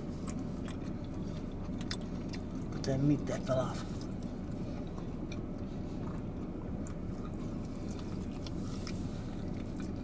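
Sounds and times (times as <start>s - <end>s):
low hum inside a car: 0.0s - 10.0s
people chewing food: 0.0s - 10.0s.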